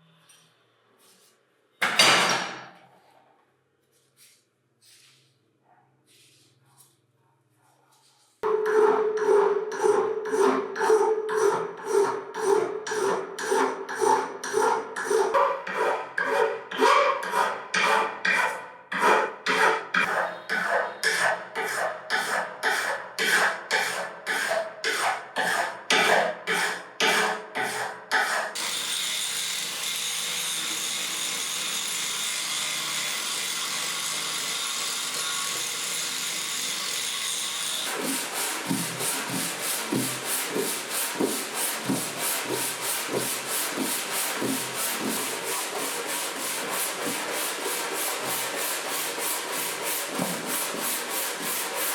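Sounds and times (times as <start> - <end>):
hand file stroking steel: 9.2 - 51.9.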